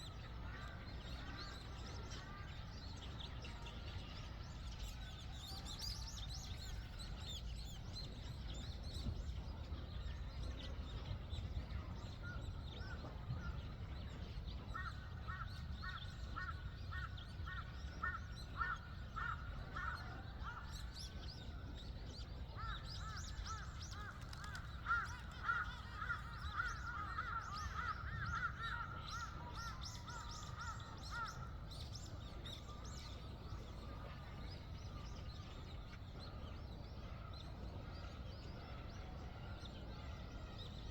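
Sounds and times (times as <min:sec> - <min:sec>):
small birds chirping: 0:14.6 - 0:37.8.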